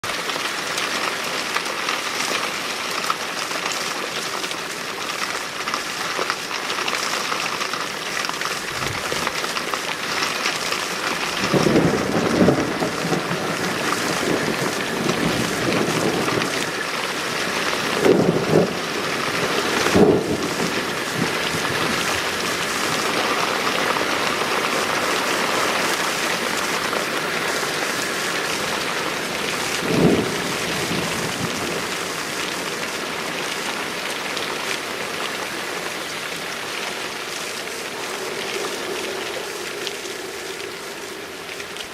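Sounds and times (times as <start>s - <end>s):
heavy rain falling: 0.0s - 41.9s
thunder rumbling: 8.4s - 34.2s, 36.2s - 41.9s.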